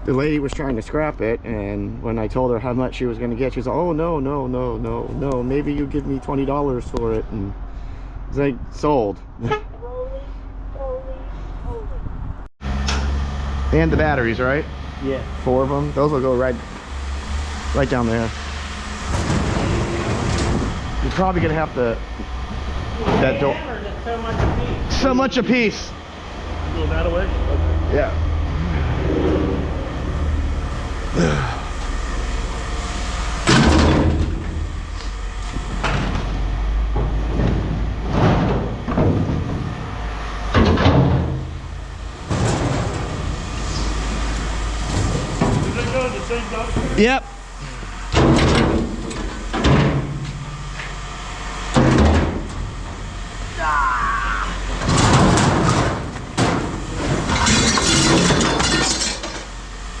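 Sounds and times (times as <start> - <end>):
low engine hum: 0.0 - 58.4
scrap metal clanking and thudding: 16.2 - 23.6, 33.3 - 51.0, 51.7 - 53.2, 54.6 - 59.7.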